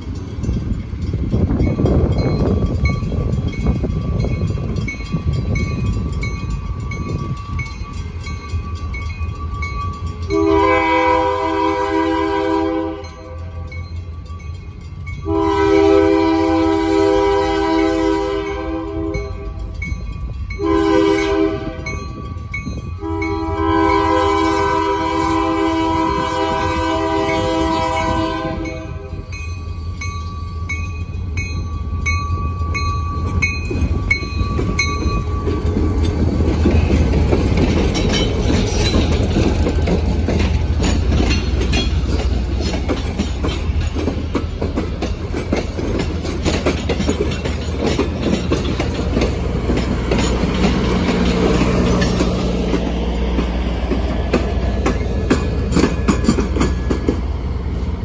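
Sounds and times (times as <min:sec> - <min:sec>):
locomotive engine rumbling: 0:00.0 - 0:58.0
locomotive air horn blasts: 0:10.3 - 0:13.7, 0:15.2 - 0:19.6, 0:20.6 - 0:22.0, 0:23.0 - 0:29.2
train wheels clicking over rail joints: 0:12.9 - 0:58.0.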